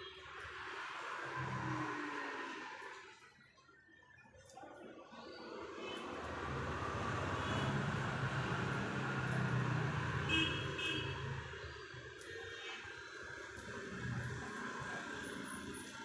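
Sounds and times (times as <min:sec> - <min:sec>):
vehicle engine passing by: 0:06.1 - 0:10.3.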